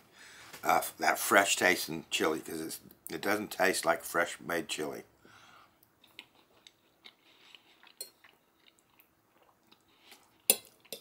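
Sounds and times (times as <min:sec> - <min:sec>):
person chewing quietly: 0:05.7 - 0:11.0.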